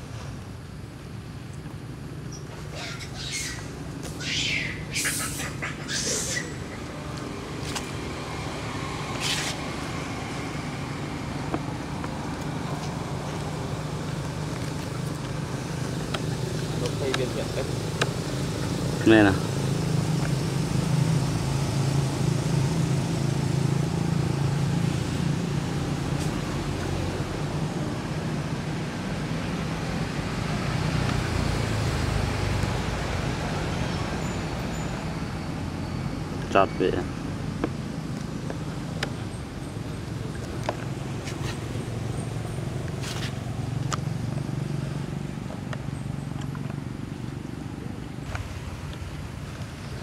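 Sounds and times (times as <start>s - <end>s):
engine hum: 0.0s - 50.0s
even hiss: 3.0s - 6.6s.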